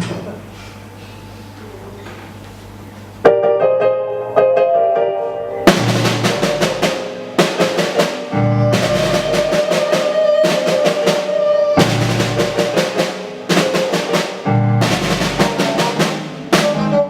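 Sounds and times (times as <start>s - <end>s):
live band playing instrumental: 5.0s - 17.0s
deep bass drum accents: 5.7s - 10.0s, 11.8s - 16.9s
cymbal crashes: 5.7s - 16.5s.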